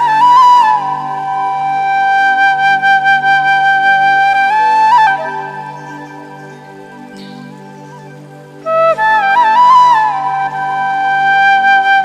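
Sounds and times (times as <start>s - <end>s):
flute melody: 0.0s - 12.0s.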